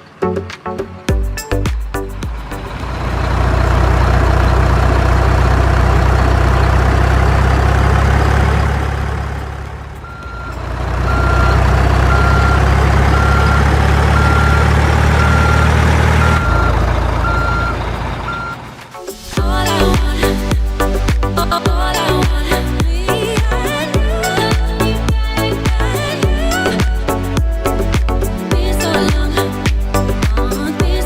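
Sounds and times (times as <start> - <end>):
heavy truck engine running: 0.0 - 31.0
reversing alarm beeping: 10.0 - 18.7.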